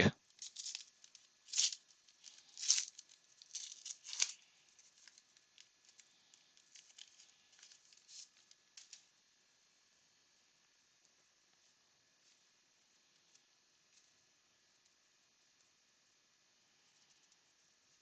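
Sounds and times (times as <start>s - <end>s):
wrapper tearing and crinkling: 0.3s - 9.0s
cards rustling: 0.3s - 9.1s.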